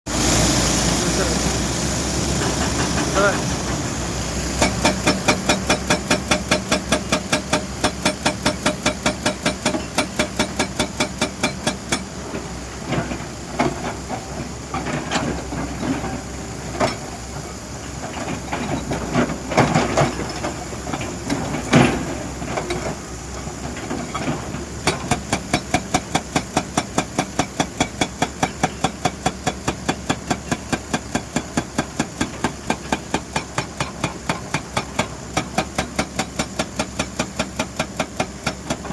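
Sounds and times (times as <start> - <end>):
excavator engine running: 0.1 - 38.9
scattered knocks and clatter: 2.4 - 3.8, 17.9 - 23.0
hydraulic breaker hammer pounding: 4.6 - 17.1, 23.8 - 38.9.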